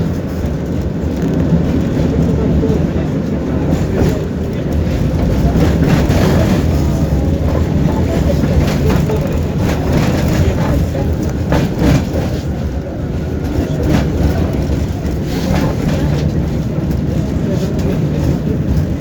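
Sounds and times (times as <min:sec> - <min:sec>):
tram rumbling on rails: 0:00.0 - 0:19.0.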